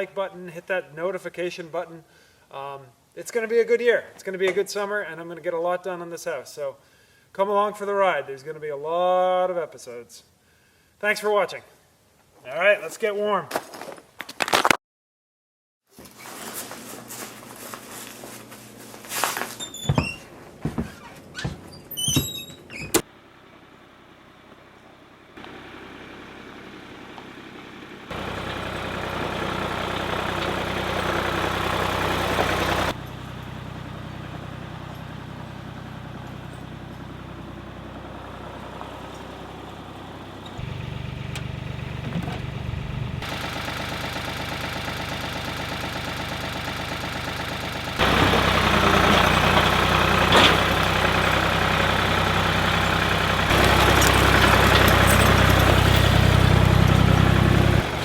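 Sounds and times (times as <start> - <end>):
sawmill engine running: 25.4 - 58.0.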